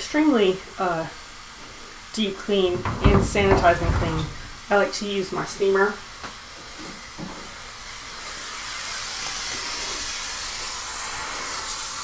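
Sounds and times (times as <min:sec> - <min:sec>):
garment steamer hissing: 0:06.6 - 0:12.0.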